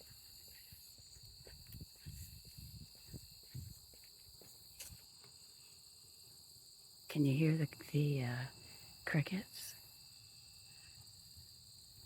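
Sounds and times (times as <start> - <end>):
soft footsteps on a trail: 0.0 - 6.5
crickets chirring: 0.0 - 12.0.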